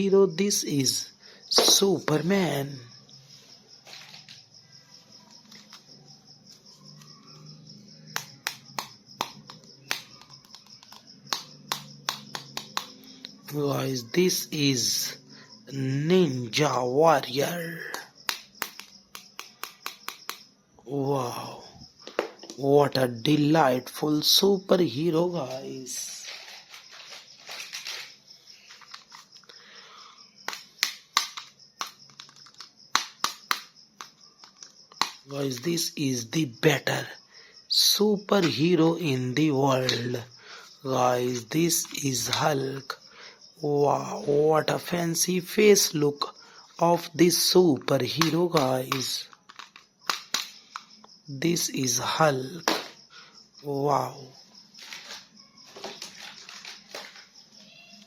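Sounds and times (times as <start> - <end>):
plastic toy clicks and taps: 8.1 - 13.0, 17.9 - 20.5, 30.4 - 35.3, 47.8 - 51.1, 52.6 - 53.0.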